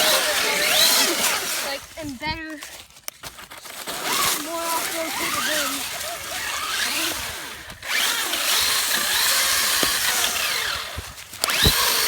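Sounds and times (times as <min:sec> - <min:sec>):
electric motor whining: 0:00.0 - 0:01.8, 0:05.0 - 0:12.0.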